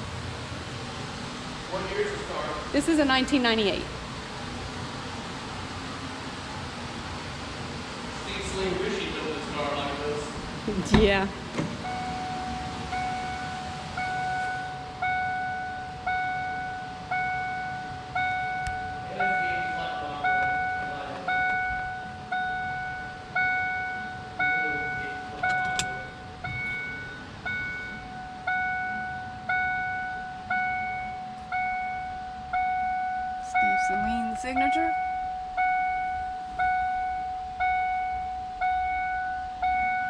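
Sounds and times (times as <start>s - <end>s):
car warning chime dinging: 2.8s - 3.8s, 10.9s - 40.0s.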